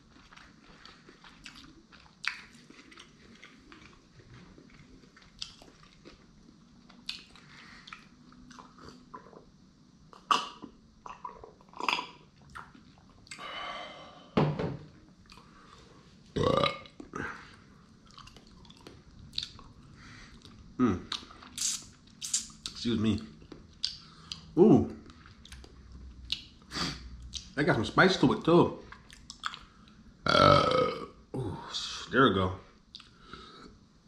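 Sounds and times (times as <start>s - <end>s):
person chewing food: 0.0s - 9.5s, 10.1s - 13.7s, 15.2s - 27.5s, 28.9s - 30.0s, 32.8s - 33.4s
wet mouth clicks and smacks: 7.0s - 9.3s, 18.3s - 19.7s, 20.4s - 22.8s, 23.6s - 24.5s, 25.5s - 26.5s, 29.0s - 29.7s, 32.9s - 33.2s.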